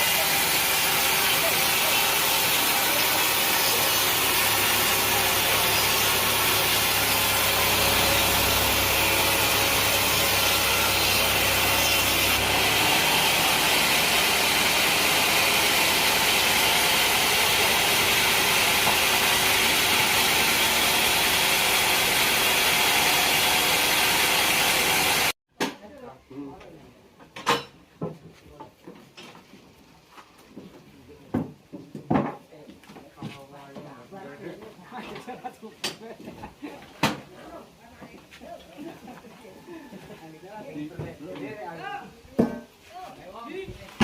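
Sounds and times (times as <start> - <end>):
saw cutting through log: 0.0 - 25.4.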